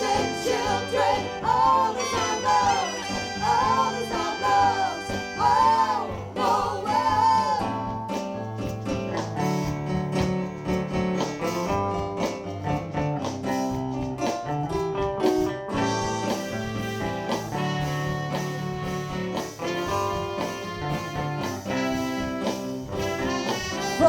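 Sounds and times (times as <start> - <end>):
guitar: 0.0 - 24.0
live soul band playing: 0.0 - 24.0.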